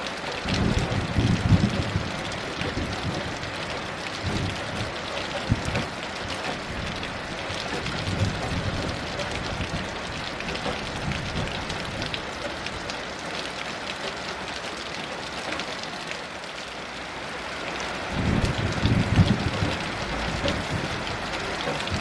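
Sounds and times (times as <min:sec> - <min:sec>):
heavy rain falling: 0:00.0 - 0:22.0
low rumble of thunder: 0:00.4 - 0:12.9, 0:18.1 - 0:22.0.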